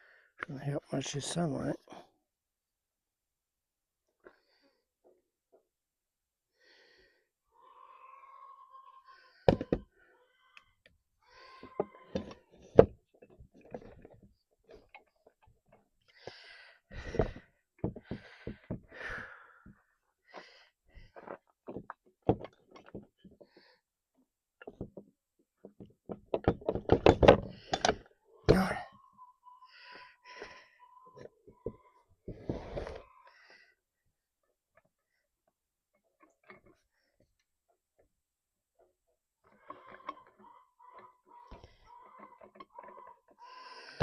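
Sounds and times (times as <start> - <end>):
metal parts and tools knocking: 26.1 - 28.1.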